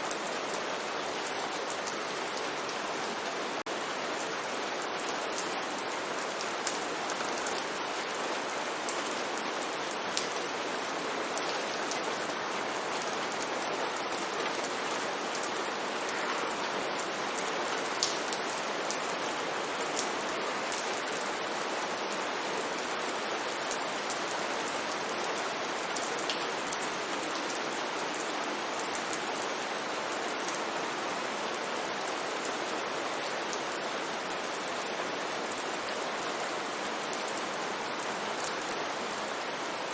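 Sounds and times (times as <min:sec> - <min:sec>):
rain hissing on a street: 0:00.0 - 0:39.9
raindrops ticking: 0:18.0 - 0:18.4.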